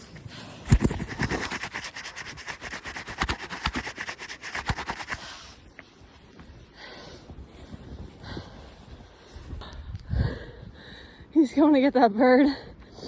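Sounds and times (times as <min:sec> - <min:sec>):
footsteps crunching through snow: 0:00.0 - 0:06.6.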